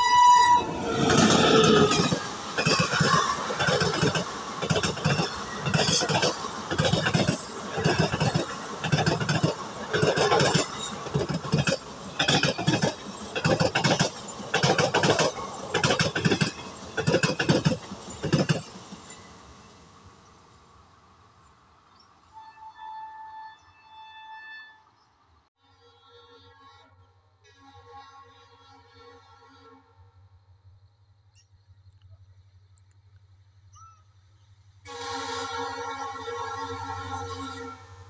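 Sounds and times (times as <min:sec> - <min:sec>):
train wheels clattering over rail joints: 0:01.0 - 0:19.3.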